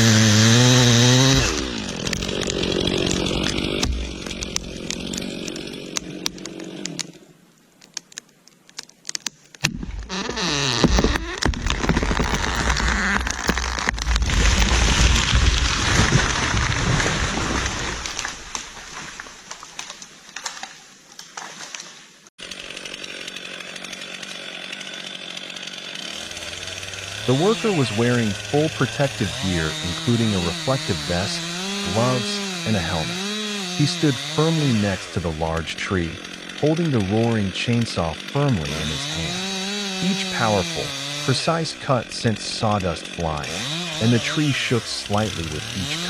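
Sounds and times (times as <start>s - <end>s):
chainsaw engine running: 0.0s - 7.3s, 9.7s - 18.6s, 22.4s - 46.0s
sharp cracks: 0.0s - 21.8s, 22.8s - 46.0s
sharp clicks: 1.5s - 15.2s.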